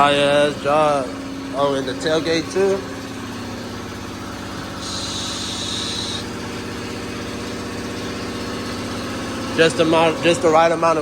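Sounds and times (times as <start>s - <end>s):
vehicle engine idling: 0.0s - 11.0s
burst of hiss: 4.8s - 6.4s.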